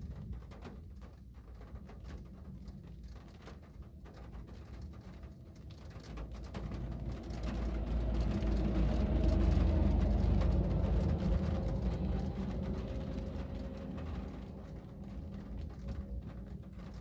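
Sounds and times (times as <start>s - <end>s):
vehicle driving past: 6.0s - 17.0s.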